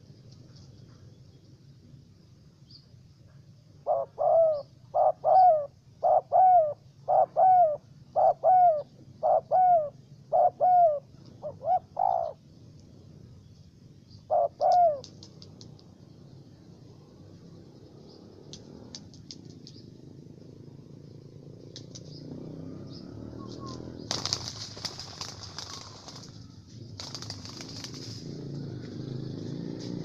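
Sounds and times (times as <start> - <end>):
dove cooing: 3.8 - 12.6, 14.1 - 15.8, 17.0 - 28.0
faint high ticks: 14.7 - 15.9, 18.4 - 19.8, 21.7 - 22.2.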